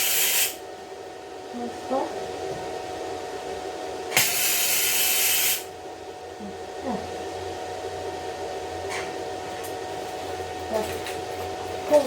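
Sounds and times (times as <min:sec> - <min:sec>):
welding arc clicking and hissing: 0:00.0 - 0:00.6, 0:04.2 - 0:05.7
machine hum: 0:00.0 - 0:12.0.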